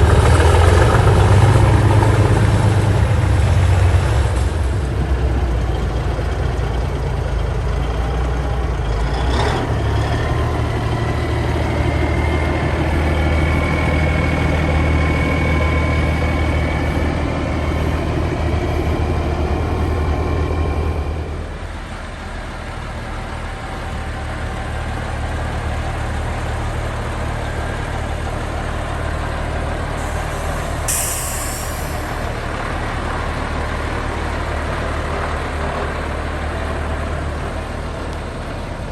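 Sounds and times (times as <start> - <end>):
diesel truck engine running: 0.0 - 38.9
air brake hiss: 29.9 - 32.4.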